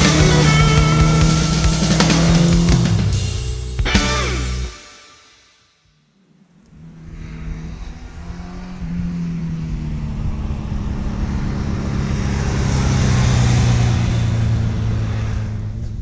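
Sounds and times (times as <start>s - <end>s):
motorcycle engine cruising: 0.0s - 4.8s
rock guitar music: 0.0s - 5.5s
wind and road noise: 6.6s - 16.0s.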